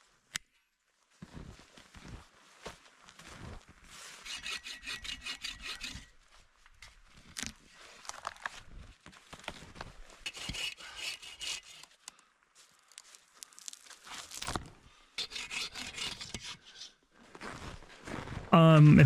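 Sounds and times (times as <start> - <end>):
hand saw cutting wood: 4.2 - 6.1, 10.3 - 12.0, 15.2 - 16.9.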